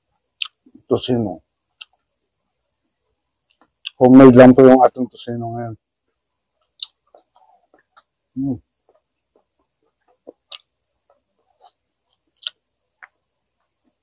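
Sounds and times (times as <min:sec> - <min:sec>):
mouth chewing with wet clicks: 0:00.4 - 0:00.6, 0:01.8 - 0:02.0, 0:03.4 - 0:04.0, 0:06.6 - 0:08.2, 0:08.9 - 0:13.2.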